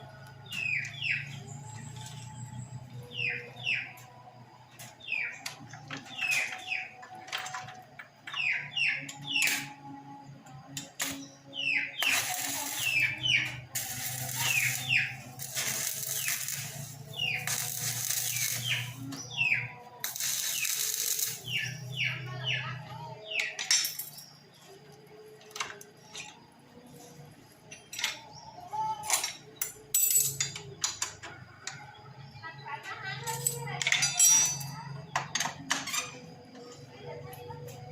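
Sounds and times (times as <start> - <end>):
small birds chirping: 8.4 - 27.1.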